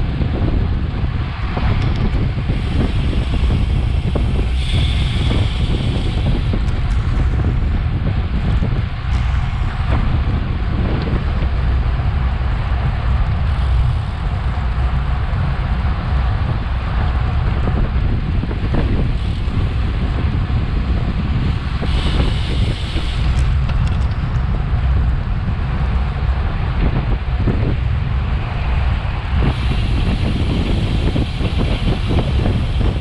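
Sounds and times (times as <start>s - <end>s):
wind rumble on microphone: 0.0s - 33.0s
bright hiss: 2.4s - 7.7s, 18.6s - 23.6s, 28.4s - 33.0s.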